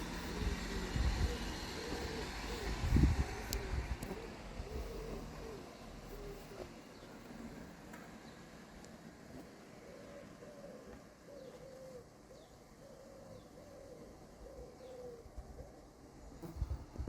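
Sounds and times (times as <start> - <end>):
pigeon cooing: 0.0 - 6.8, 9.8 - 15.9.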